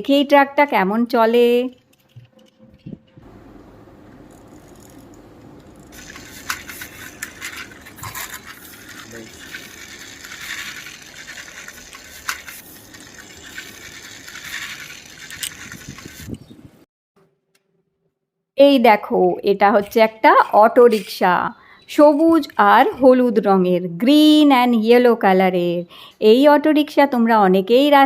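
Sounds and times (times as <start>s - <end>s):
plastic toy truck rolling and rattling: 5.8s - 16.4s.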